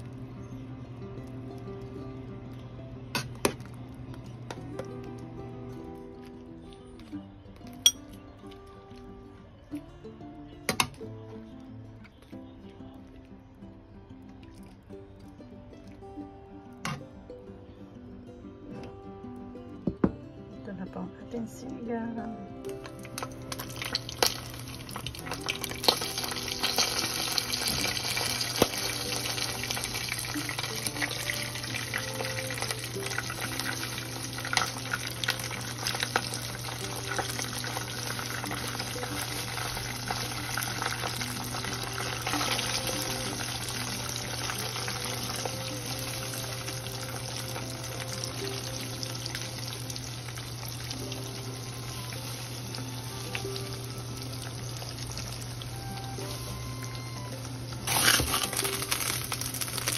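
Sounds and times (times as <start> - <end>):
chicken frying in oil: 22.8 - 59.9.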